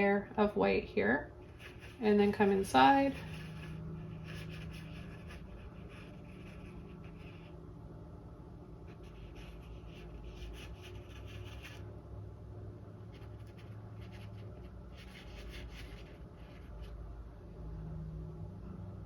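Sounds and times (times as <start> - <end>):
low steady hum: 0.0 - 19.0
paintbrush scratching on canvas: 1.4 - 7.6, 8.9 - 11.8, 13.0 - 17.0.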